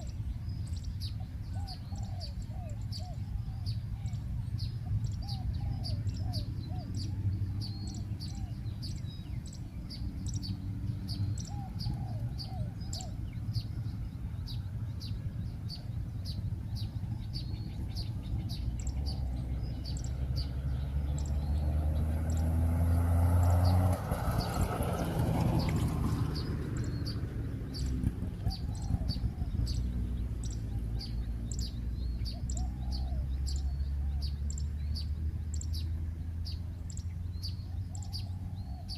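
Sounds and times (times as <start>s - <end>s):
small birds chirping: 0.0s - 38.9s
doves cooing: 1.5s - 9.0s, 9.9s - 13.8s, 22.0s - 34.4s, 37.5s - 38.9s.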